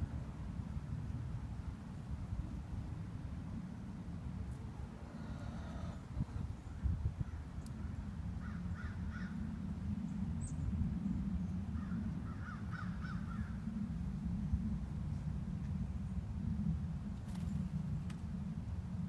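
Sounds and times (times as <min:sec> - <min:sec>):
steady low rumble: 0:00.0 - 0:19.0
crow cawing: 0:08.4 - 0:09.4, 0:11.8 - 0:13.5.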